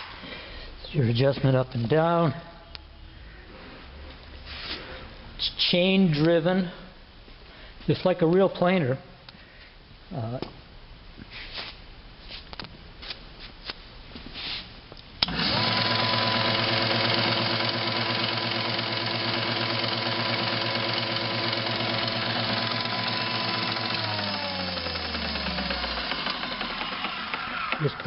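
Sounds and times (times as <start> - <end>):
wood planer motor humming: 15.2 - 28.0.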